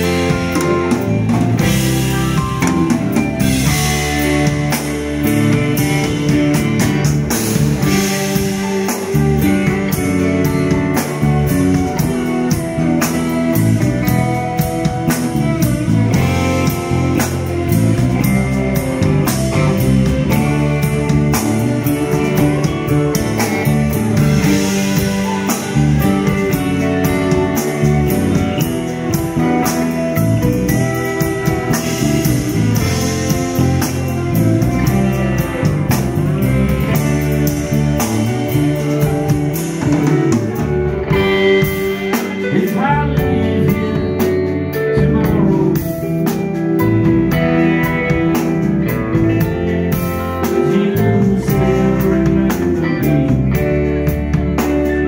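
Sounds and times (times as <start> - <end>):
drum kit: 0.0 - 55.0
guitars: 0.0 - 55.0
person singing: 36.7 - 46.4, 48.4 - 55.0.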